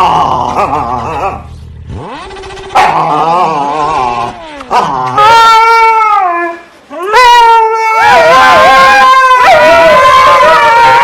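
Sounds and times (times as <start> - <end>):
dog howling and whining: 2.1 - 11.0.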